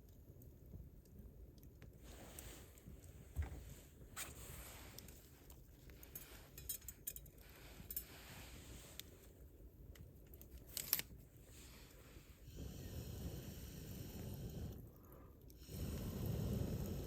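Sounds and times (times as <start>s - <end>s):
wood fire crackling and popping: 0.0s - 7.6s
low steady hiss: 0.0s - 17.0s.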